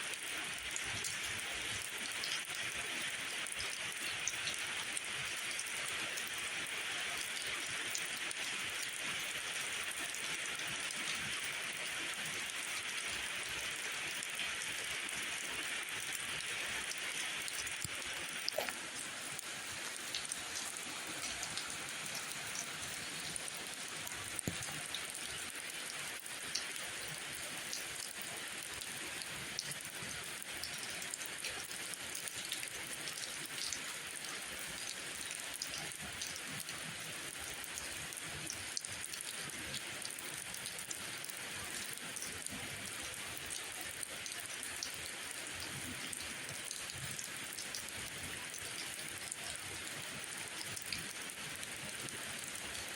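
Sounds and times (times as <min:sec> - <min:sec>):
steady rainfall: 0:00.0 - 0:52.9
raindrops ticking: 0:15.9 - 0:26.7.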